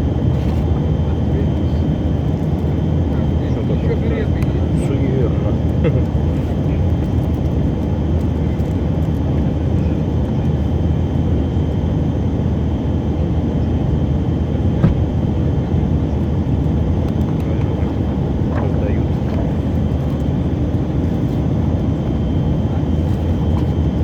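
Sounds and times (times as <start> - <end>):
airliner cabin rumble: 0.0 - 24.0
brief knock: 14.8 - 15.0.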